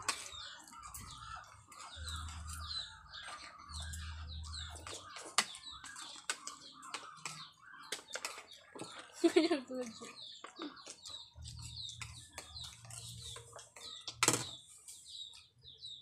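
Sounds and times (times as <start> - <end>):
spoons clicking against plates: 0.0 - 4.1
birds chirping: 0.0 - 16.0.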